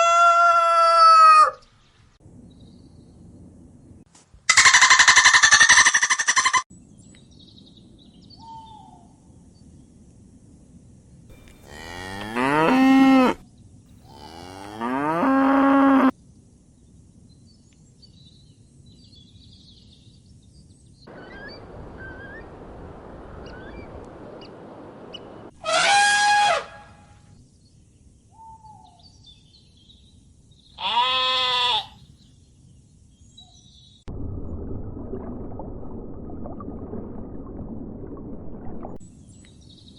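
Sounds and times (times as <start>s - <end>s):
cattle mooing: 11.3s - 13.4s, 14.0s - 16.1s.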